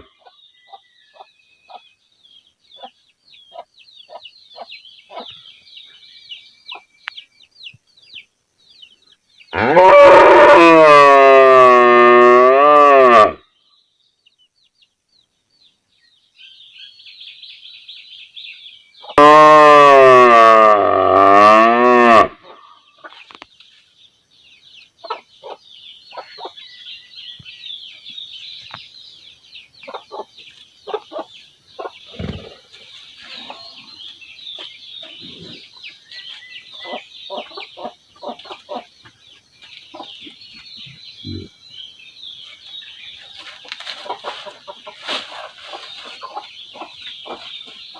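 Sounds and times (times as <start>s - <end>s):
small birds chirping: 0.0s - 9.7s, 13.4s - 19.2s, 22.4s - 47.9s
chickens clucking softly: 2.8s - 5.4s, 25.0s - 26.6s, 29.8s - 34.0s, 36.7s - 41.5s, 43.3s - 47.8s
cow mooing loudly: 9.6s - 13.4s, 19.2s - 22.4s.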